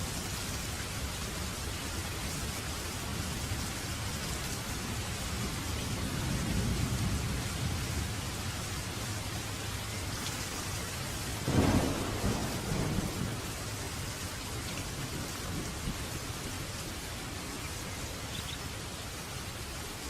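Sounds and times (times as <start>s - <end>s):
steady rain falling: 0.0s - 20.0s
thunder rumbling: 4.9s - 9.9s, 10.6s - 17.6s.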